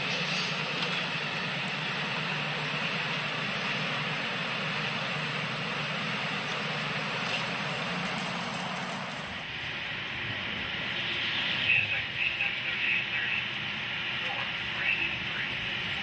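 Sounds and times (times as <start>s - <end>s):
train wheels rolling on rails: 0.0s - 16.0s.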